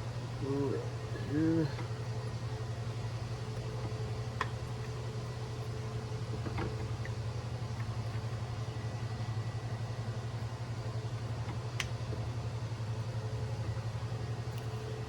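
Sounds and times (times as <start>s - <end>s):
low pulsing mechanical hum: 0.0s - 15.0s.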